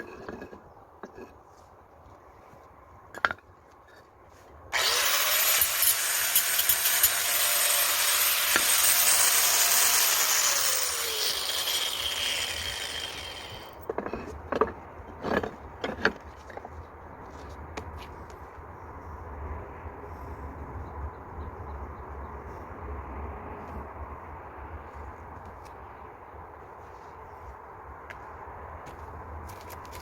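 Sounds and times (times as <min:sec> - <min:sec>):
power tool cutting: 0:04.8 - 0:13.8.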